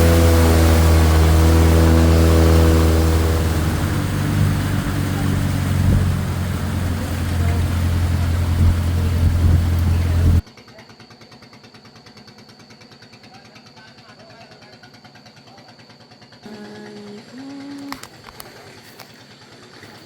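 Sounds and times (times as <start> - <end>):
boat engine running: 0.0 - 10.4, 16.4 - 20.0.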